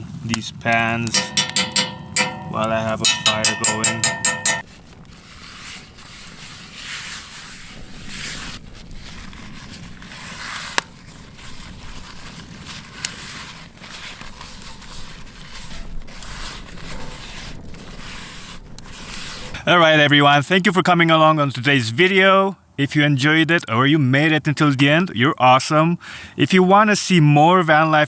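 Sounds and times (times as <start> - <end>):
campfire crackling and hissing: 0.0 - 1.1, 4.9 - 19.6.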